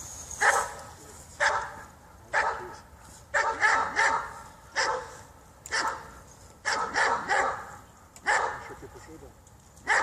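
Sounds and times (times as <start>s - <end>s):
dog barking: 0.4s - 0.8s, 1.4s - 8.8s.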